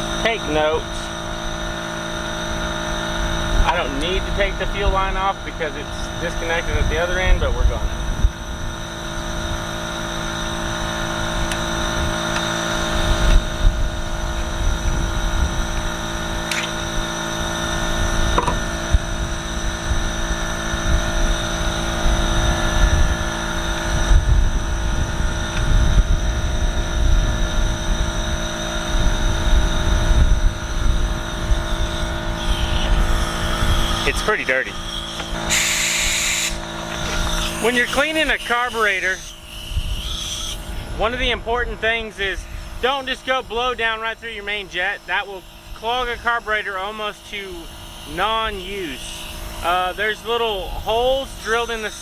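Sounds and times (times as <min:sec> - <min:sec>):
machine hum: 0:00.0 - 0:52.0
small clicks: 0:16.5 - 0:16.8.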